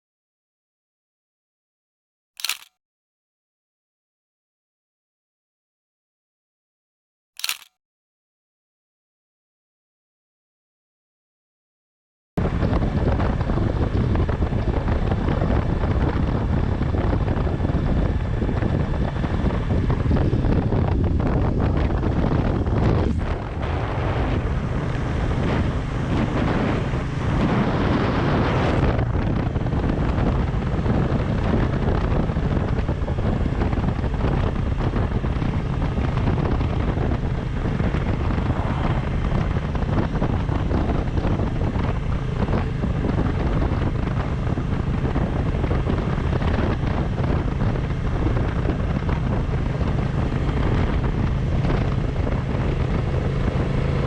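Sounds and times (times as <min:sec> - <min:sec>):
motorcycle engine droning: 0:12.4 - 0:54.0
wind rushing over microphone: 0:12.4 - 0:54.0.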